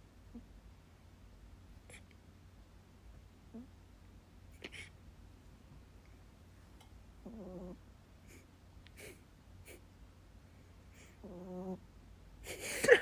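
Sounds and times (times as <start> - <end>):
dog snoring: 7.2 - 7.8, 11.2 - 11.8.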